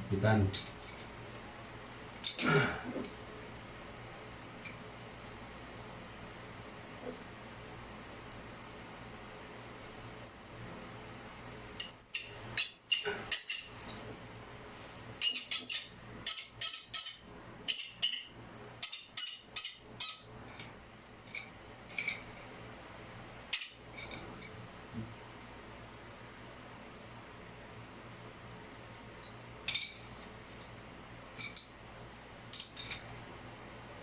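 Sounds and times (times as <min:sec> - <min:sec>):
steady low hum: 0:00.0 - 0:34.0
bird chirping: 0:10.2 - 0:10.6, 0:11.8 - 0:13.7, 0:15.2 - 0:20.2.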